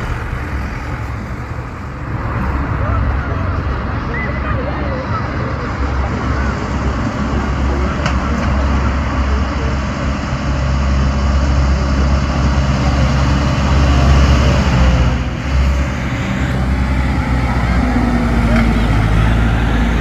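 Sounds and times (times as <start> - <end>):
tractor engines droning: 0.0 - 20.0.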